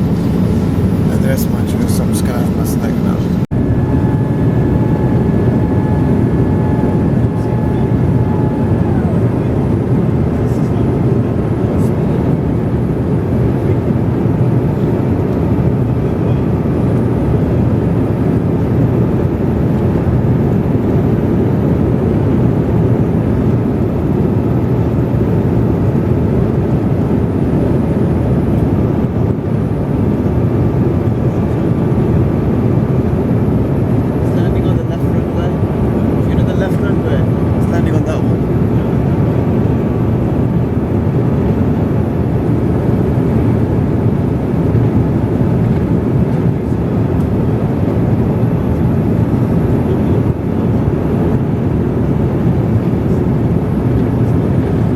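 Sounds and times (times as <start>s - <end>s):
airplane cabin engine rush: 0.0s - 54.9s
faint thin whine: 1.2s - 9.7s.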